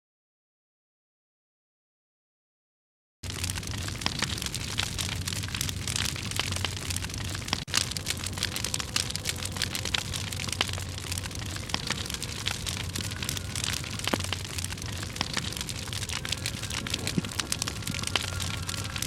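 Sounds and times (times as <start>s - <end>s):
campfire crackling: 3.2s - 19.0s.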